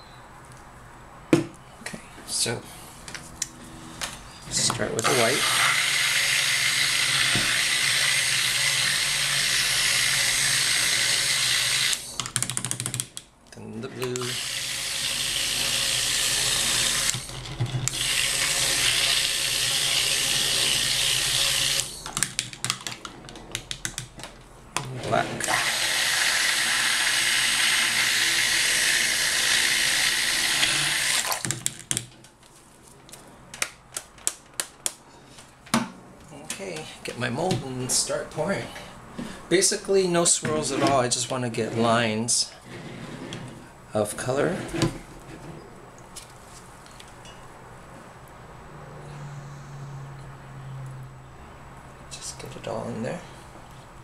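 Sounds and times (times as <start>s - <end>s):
stick blender running: 5.0s - 12.1s, 14.2s - 22.1s, 25.4s - 31.6s.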